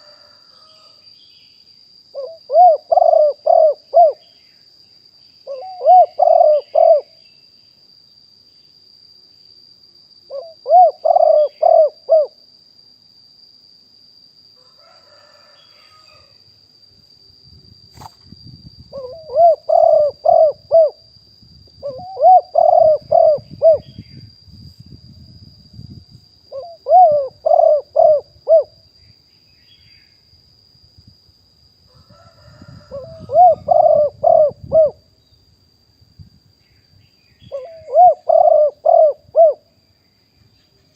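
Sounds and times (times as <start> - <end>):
dove cooing: 2.2 - 4.2, 5.5 - 7.2, 10.3 - 12.4, 18.9 - 21.0, 21.8 - 24.0, 26.5 - 28.8, 32.5 - 35.0, 37.4 - 39.7.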